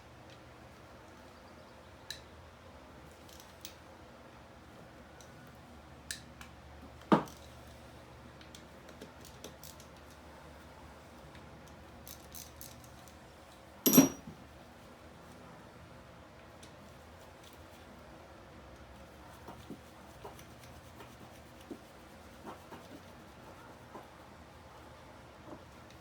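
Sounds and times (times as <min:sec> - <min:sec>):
light clicks of tools: 0:03.1 - 0:03.8, 0:08.4 - 0:10.2
ringing metallic clinks: 0:13.9 - 0:14.2.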